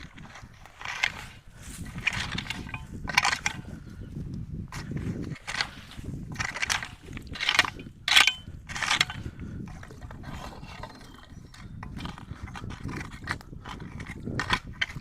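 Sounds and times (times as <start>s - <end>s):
debris scraping and raking: 0.0s - 3.6s, 4.7s - 11.2s.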